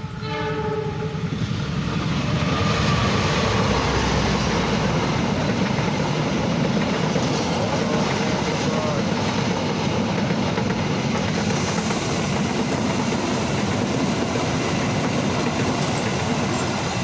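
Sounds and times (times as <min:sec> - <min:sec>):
train horn blast: 0:00.0 - 0:01.2
train wheels rumbling on rails: 0:00.0 - 0:17.0.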